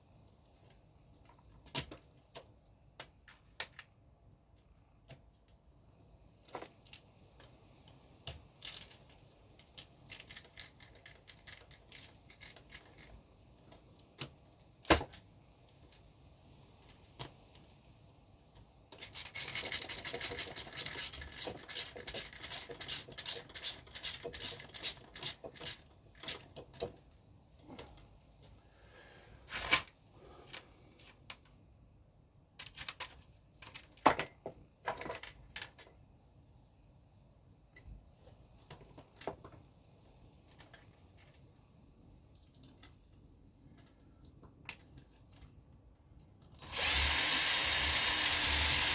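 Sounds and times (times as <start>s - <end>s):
plastic parts clicking and knocking: 8.2s - 16.0s, 18.9s - 27.9s, 32.6s - 36.0s.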